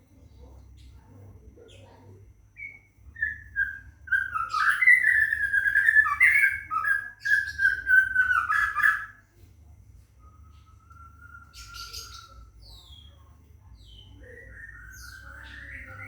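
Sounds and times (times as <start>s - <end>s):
bird whistling song: 2.6s - 9.2s, 10.2s - 13.2s, 13.8s - 16.0s.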